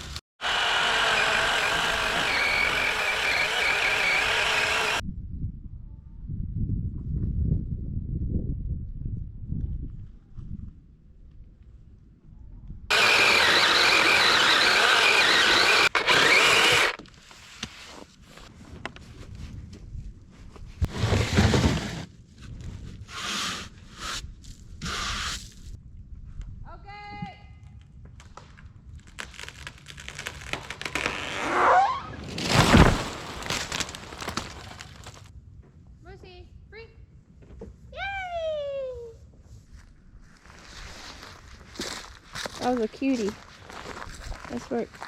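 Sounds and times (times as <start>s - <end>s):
electric chainsaw cutting wood: 0.4s - 5.0s, 12.9s - 17.0s
heavy crash of tree: 0.4s - 5.0s, 30.2s - 35.3s
branches breaking: 1.2s - 5.0s, 28.2s - 35.3s
wood cracking and snapping: 28.2s - 31.6s, 32.3s - 35.3s.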